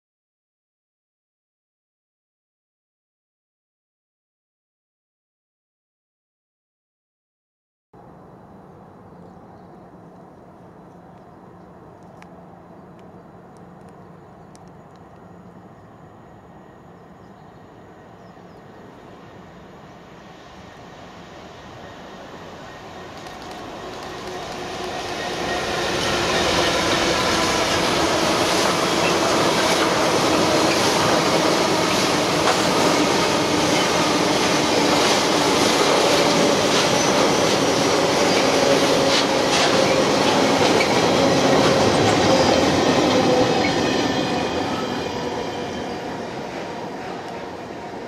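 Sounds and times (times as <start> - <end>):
diesel locomotive engine: 8.0 - 48.0
rail joint clicks: 9.2 - 16.0, 22.6 - 44.8, 46.5 - 47.6.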